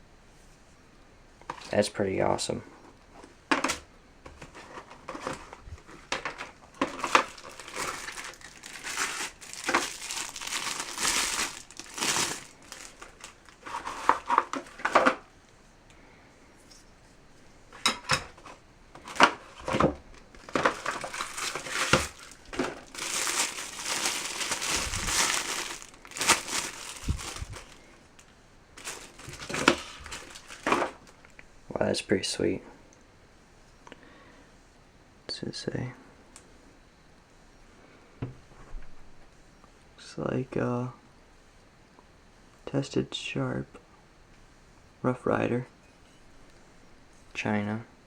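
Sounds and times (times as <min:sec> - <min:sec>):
packaging crinkling: 0:04.5 - 0:15.2, 0:19.0 - 0:31.4.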